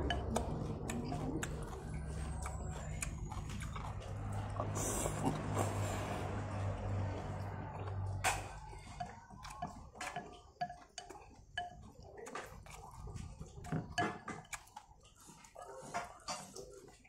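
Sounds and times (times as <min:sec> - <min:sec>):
chopsticks tapping a bowl: 0:00.0 - 0:01.5, 0:08.2 - 0:12.0
wet chewing mouth sounds: 0:00.0 - 0:17.0.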